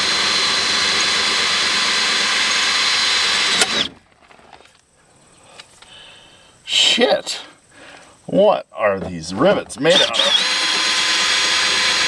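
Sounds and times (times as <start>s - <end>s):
power drill whining: 0.0s - 3.9s, 9.9s - 12.0s.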